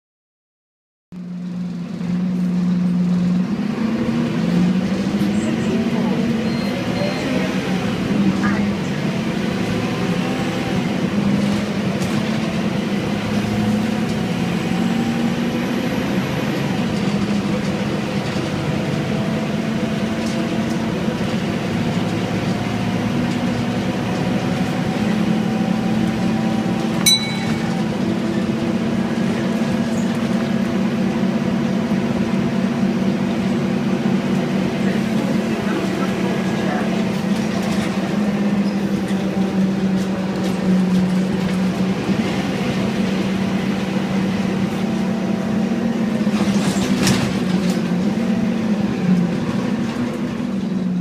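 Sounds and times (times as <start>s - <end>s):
bus diesel engine droning: 1.2s - 51.0s
sharp ringing click: 27.0s - 28.0s.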